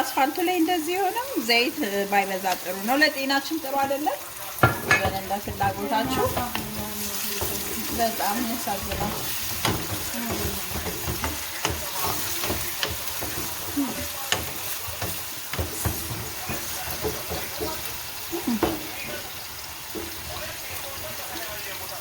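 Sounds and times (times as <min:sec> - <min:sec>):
food sizzling in hot oil: 0:00.0 - 0:22.0
spoon scraping a pan: 0:02.2 - 0:21.4.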